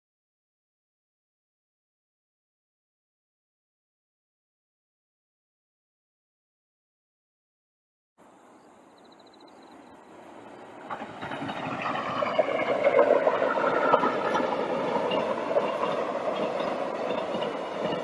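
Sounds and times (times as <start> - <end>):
passenger train passing: 8.2 - 18.0
wheels clicking on rails: 10.3 - 18.0.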